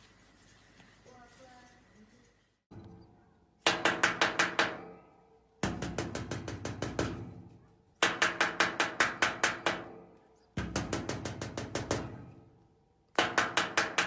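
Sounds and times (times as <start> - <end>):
rapid knocking on hard object: 3.7 - 4.8, 5.6 - 7.2, 8.0 - 9.9, 10.6 - 12.1, 13.2 - 14.0.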